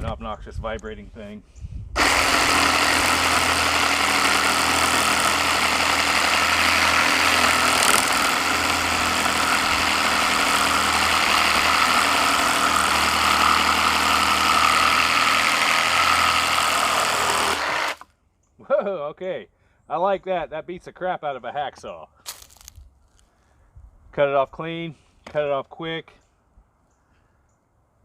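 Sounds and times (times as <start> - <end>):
reciprocating saw cutting metal: 2.0 - 18.0.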